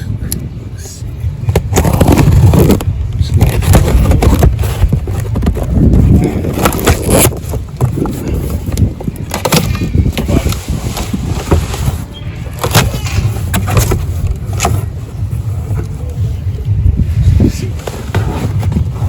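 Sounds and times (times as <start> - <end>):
low rumble: 0.0 - 19.0
cardboard box scrapes and rustles: 3.4 - 8.7, 9.5 - 15.4, 17.2 - 19.0.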